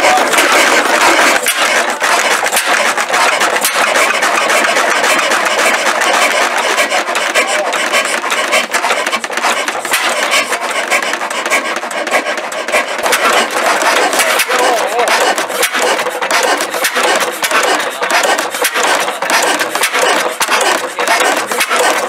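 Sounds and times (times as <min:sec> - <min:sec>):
stationary engine rasping clatter: 0:00.0 - 0:22.0.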